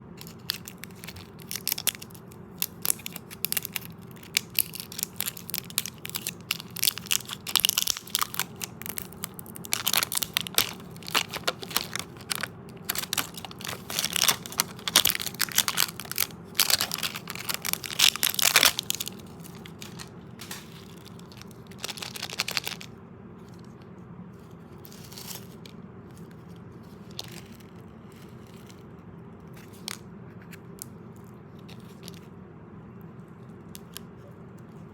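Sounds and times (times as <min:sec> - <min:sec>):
candy crunching: 0:00.1 - 0:23.8.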